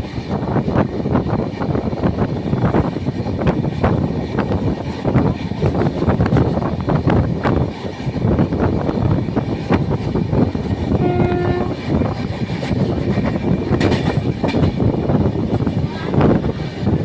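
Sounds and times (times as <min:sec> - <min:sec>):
train rumbling on rails: 0:00.0 - 0:17.0
train horn blast: 0:11.0 - 0:12.0
wheel clatter over track joints: 0:11.7 - 0:17.0.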